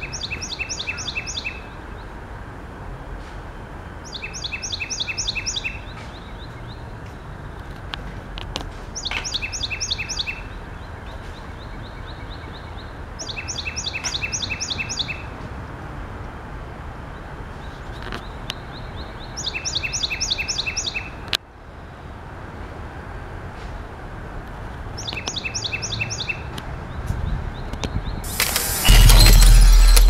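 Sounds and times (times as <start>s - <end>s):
songbird chirping: 0.0s - 2.2s, 4.0s - 7.4s, 9.0s - 15.3s, 17.6s - 21.2s
sharp click: 28.3s - 30.0s.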